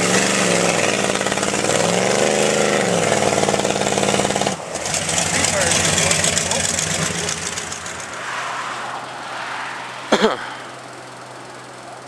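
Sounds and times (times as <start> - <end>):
truck engine running: 0.0 - 8.2.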